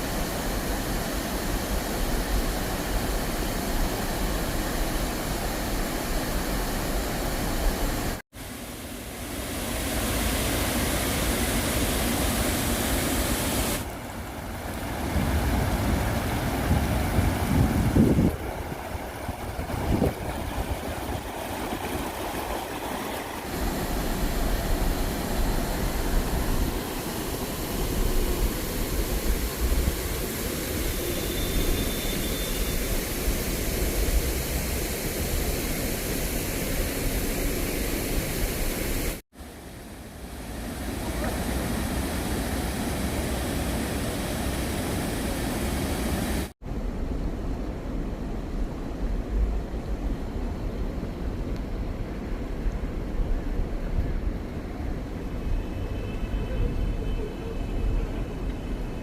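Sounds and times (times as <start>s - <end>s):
stream water flowing: 0.0s - 46.6s
wind buffeting microphone: 14.5s - 27.0s.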